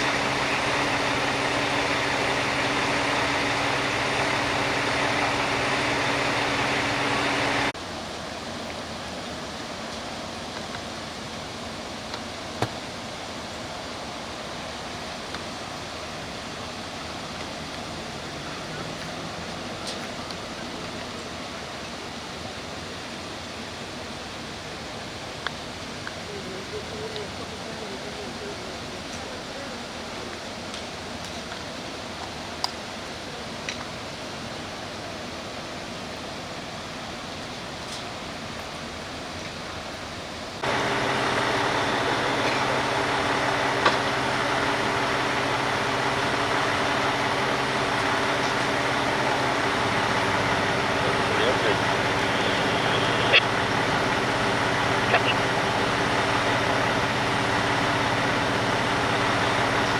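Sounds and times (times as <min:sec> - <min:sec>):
road noise inside vehicle: 0:00.0 - 0:07.8, 0:40.6 - 0:59.9.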